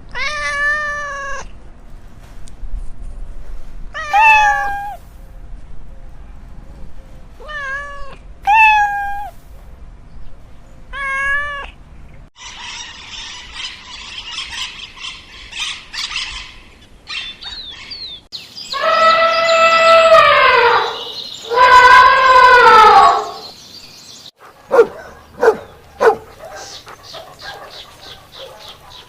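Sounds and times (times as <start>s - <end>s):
cat meowing: 0.1s - 1.5s, 4.0s - 5.0s, 7.4s - 9.3s, 10.9s - 11.8s.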